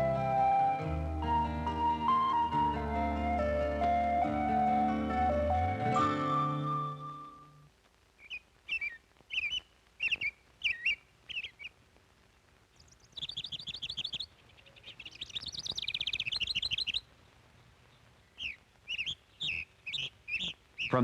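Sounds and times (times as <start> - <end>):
songbird chirps and trills: 0.0 - 11.8, 12.6 - 21.0.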